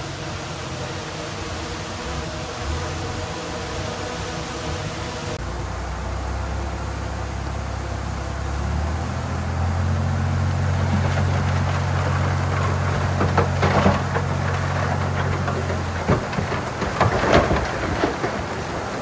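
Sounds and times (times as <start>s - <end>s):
heavy diesel engine revving: 5.4s - 19.0s
rattling and clatter: 10.2s - 19.0s.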